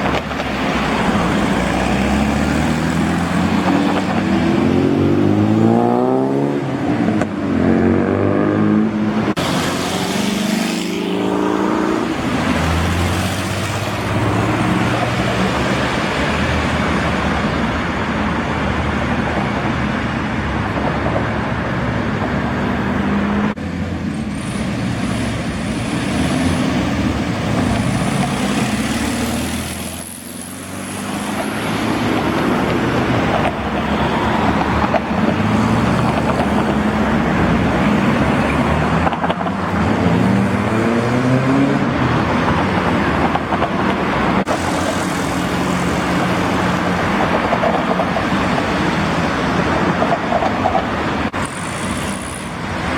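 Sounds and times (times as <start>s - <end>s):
car engines accelerating: 0.0s - 19.3s, 21.3s - 50.3s
cars driving past: 0.0s - 52.9s.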